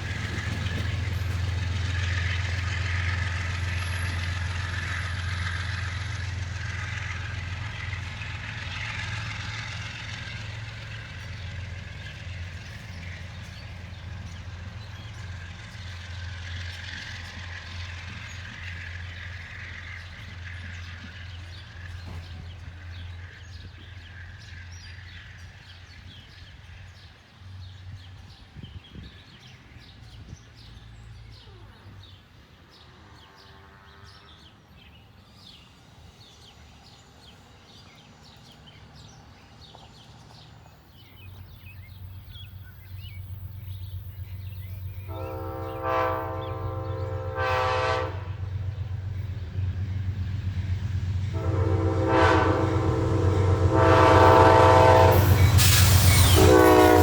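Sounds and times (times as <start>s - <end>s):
train rumbling: 0.0s - 33.3s, 34.5s - 57.0s
train horn blowing: 45.0s - 48.9s, 51.2s - 57.0s.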